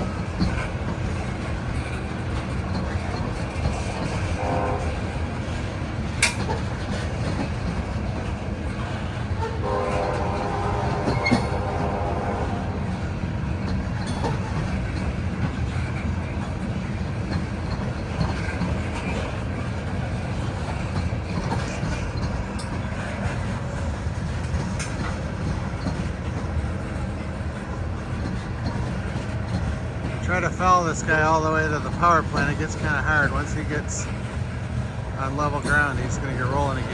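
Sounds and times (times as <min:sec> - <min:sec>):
train wheels rumbling on rail: 0:00.0 - 0:36.9
train horn: 0:04.3 - 0:05.2, 0:09.4 - 0:12.9.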